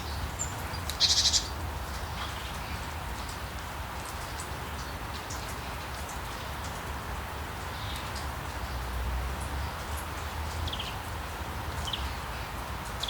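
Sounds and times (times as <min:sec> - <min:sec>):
birds chirping and trilling: 0:00.0 - 0:01.6
steady rain falling: 0:00.0 - 0:13.0.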